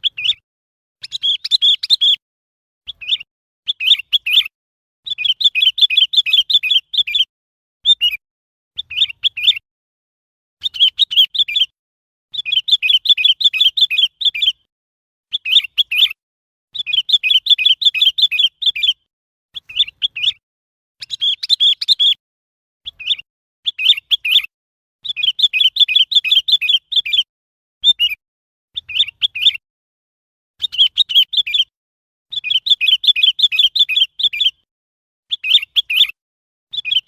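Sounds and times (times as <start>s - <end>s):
bird singing bubbly phrases: 1.0s - 2.2s, 2.9s - 8.2s, 8.8s - 9.6s, 10.6s - 11.7s, 12.3s - 14.6s, 15.3s - 16.2s, 16.8s - 19.0s, 19.6s - 20.4s, 21.0s - 22.2s, 22.8s - 28.2s, 28.8s - 29.6s, 30.6s - 31.7s, 32.3s - 34.6s, 35.3s - 37.0s.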